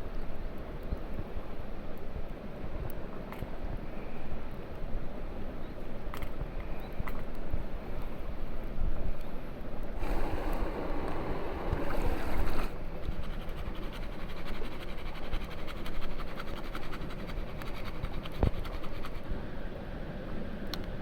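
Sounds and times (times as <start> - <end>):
campfire crackling: 10.0 - 13.0
steady rushing noise: 10.0 - 18.6.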